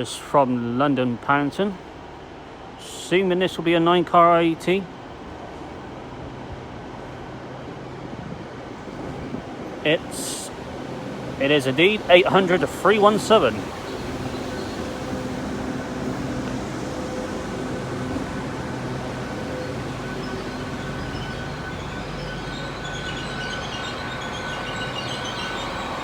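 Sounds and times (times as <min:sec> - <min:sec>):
train diesel engine hum: 0:00.0 - 0:26.0
high wavering squeal: 0:08.9 - 0:26.0.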